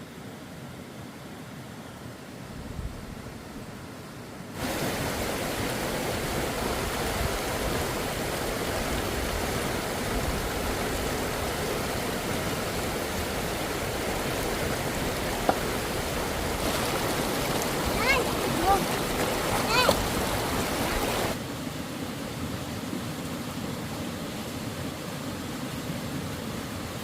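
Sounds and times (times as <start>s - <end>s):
running water rushing: 3.0s - 27.0s.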